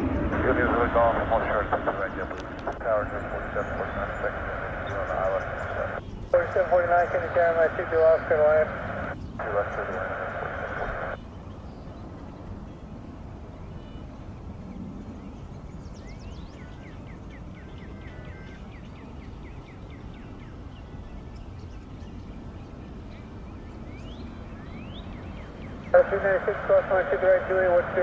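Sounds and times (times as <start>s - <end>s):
low outdoor rumble: 0.0s - 11.2s, 26.0s - 28.0s
small birds chirping: 0.0s - 11.2s.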